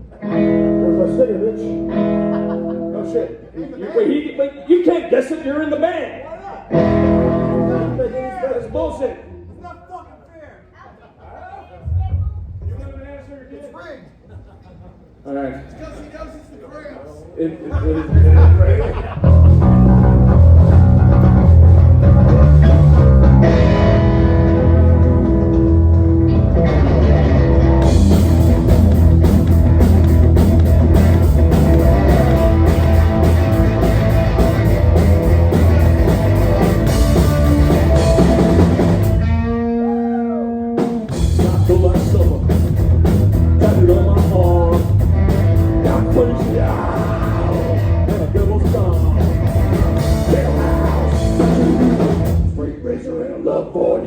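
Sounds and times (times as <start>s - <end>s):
rock band playing: 0.0s - 3.5s, 6.7s - 8.1s, 18.1s - 52.6s.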